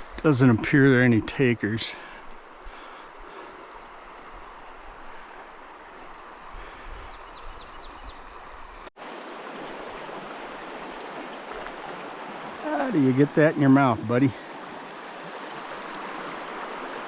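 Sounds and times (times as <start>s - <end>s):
mountain stream rushing: 9.0s - 17.0s.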